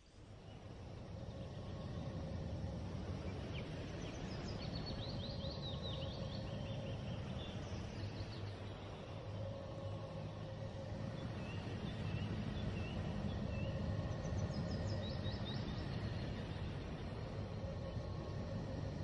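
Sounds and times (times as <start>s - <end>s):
steady low rumble: 0.1s - 19.0s.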